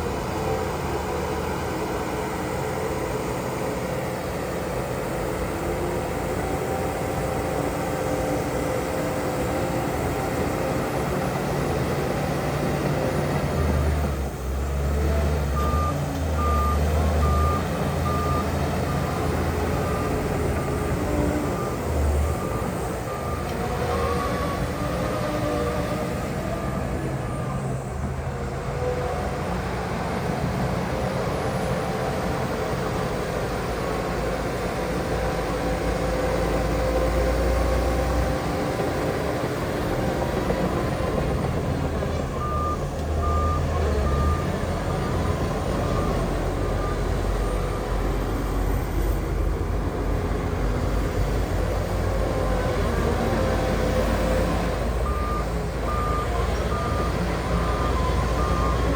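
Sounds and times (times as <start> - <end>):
heavy diesel engines rumbling: 0.0 - 58.9
reversing alarm beeping: 15.6 - 25.0, 42.3 - 48.3, 55.0 - 58.9.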